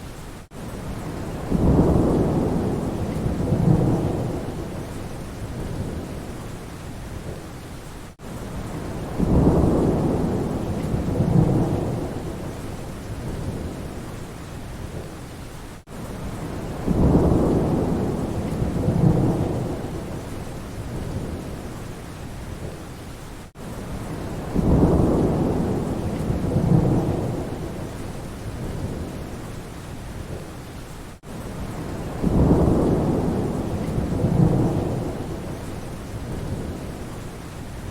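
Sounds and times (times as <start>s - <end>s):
steady rain: 0.0s - 37.9s
rolling thunder: 1.0s - 6.3s, 8.6s - 14.0s, 16.2s - 21.7s, 23.9s - 29.3s, 31.2s - 37.0s.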